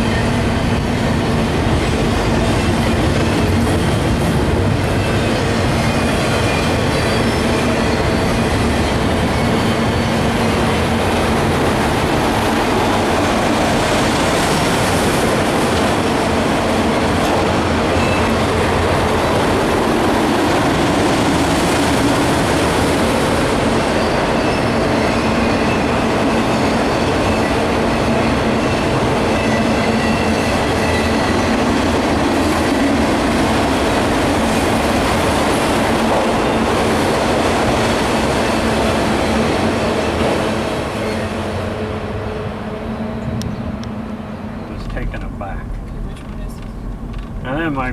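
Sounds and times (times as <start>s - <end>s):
freight train wheels rumbling: 0.0s - 47.9s
wheels squealing: 4.9s - 11.2s, 43.2s - 47.9s.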